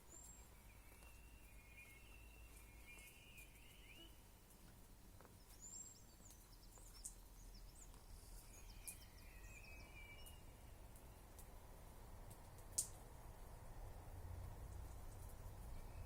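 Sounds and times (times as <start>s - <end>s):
distant birdsong: 0.0s - 11.9s, 14.8s - 16.0s
small clicks: 12.3s - 13.0s.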